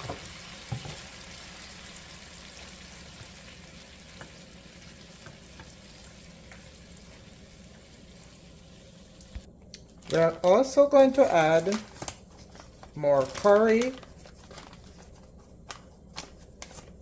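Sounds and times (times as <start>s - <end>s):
garlic sizzling in oil: 0.0s - 9.5s.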